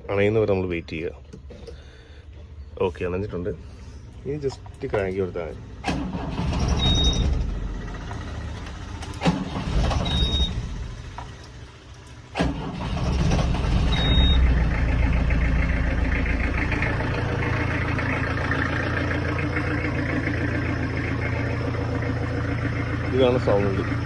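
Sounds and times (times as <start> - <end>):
diesel engine starting and idling: 0.0 - 24.0.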